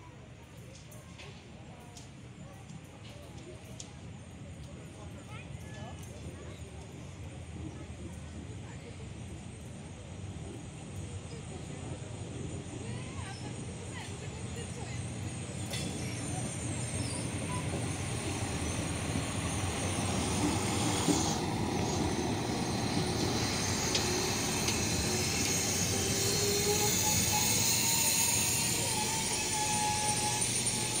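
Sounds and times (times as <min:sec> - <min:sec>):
train wheels on rails: 0:00.4 - 0:31.0
diesel train engine running: 0:09.0 - 0:31.0
thin squealing tones: 0:15.9 - 0:31.0.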